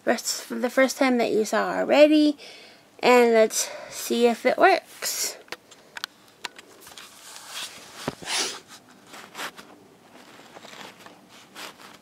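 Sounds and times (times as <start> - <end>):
rustling scrapes: 6.8 - 12.0.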